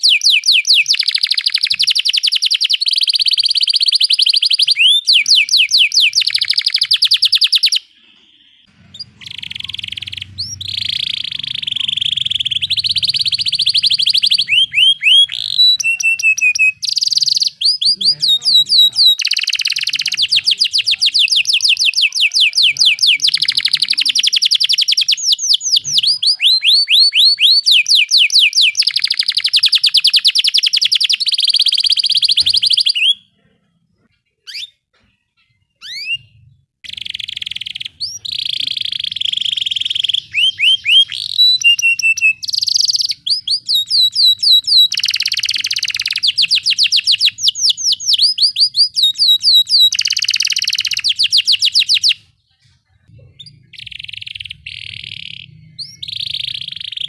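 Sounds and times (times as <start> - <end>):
short bird chirps: 0.0 - 33.4, 53.3 - 57.0
canary singing rolling trills: 0.0 - 57.0.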